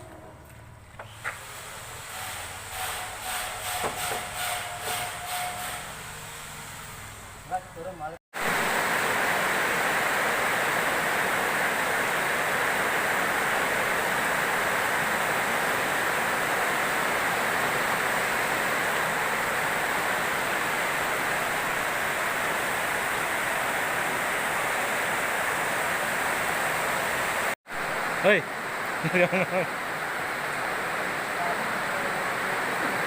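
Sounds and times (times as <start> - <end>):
rain falling steadily: 8.4 - 33.0.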